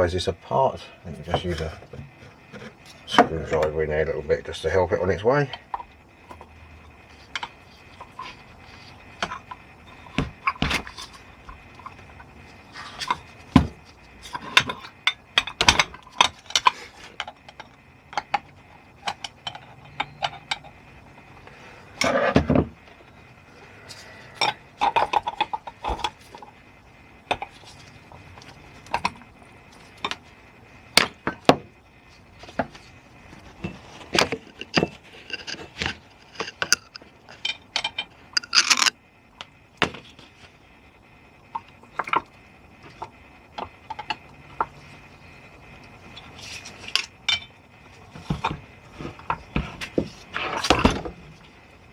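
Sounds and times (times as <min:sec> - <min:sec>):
screwdriver clinking on metal: 0:34.2 - 0:38.9.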